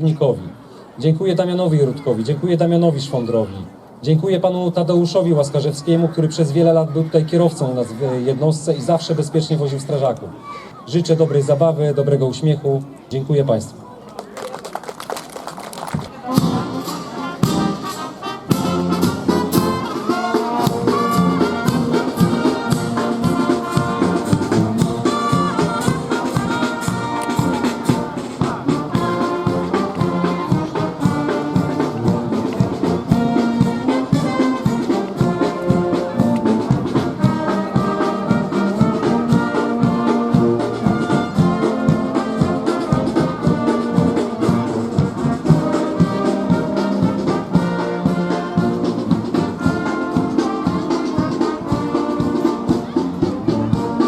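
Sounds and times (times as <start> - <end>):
brass band playing: 16.0 - 54.0.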